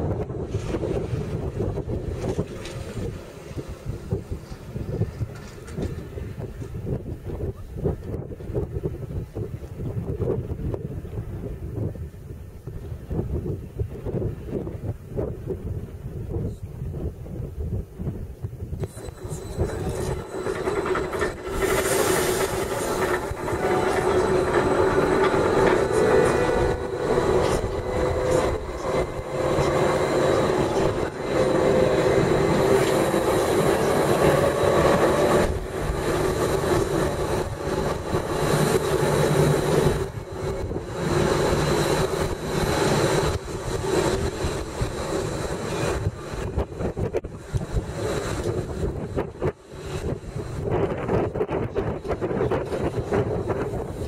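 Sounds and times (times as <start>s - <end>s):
train wheels running noise: 0.0s - 10.8s, 18.5s - 54.0s
humming whine: 18.8s - 54.0s.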